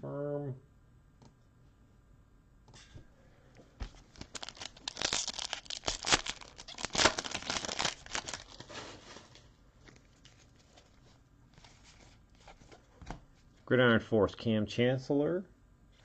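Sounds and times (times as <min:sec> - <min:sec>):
foil wrapper tearing and crinkling: 0:04.1 - 0:09.3.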